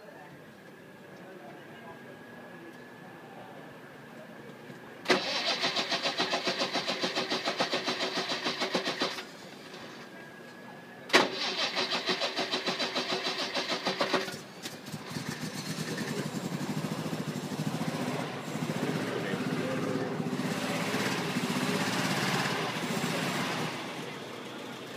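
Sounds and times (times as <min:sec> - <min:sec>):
engine running: 0:04.3 - 0:24.9
engine cranking on starter motor: 0:05.0 - 0:10.1, 0:11.1 - 0:16.7.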